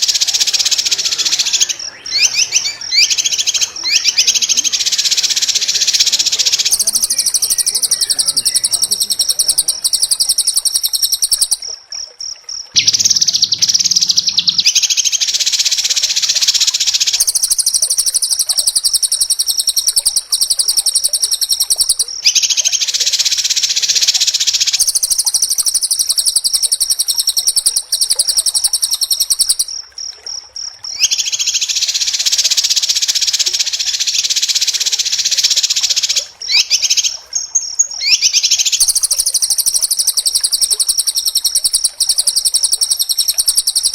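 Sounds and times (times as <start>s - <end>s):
bird singing high trills: 0.0s - 11.6s, 12.8s - 22.6s, 38.0s - 43.9s.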